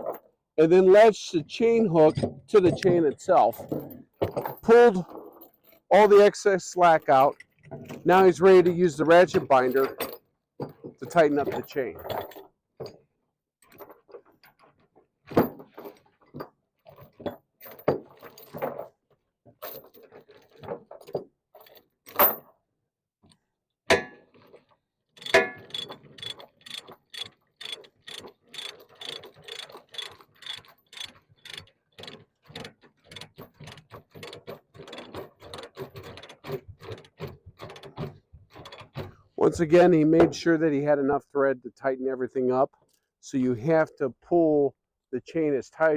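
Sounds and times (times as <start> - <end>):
chain clanking: 1.9 - 14.8, 15.4 - 18.9, 19.6 - 22.5, 24.3 - 39.6
ratchet clicks: 25.2 - 35.6.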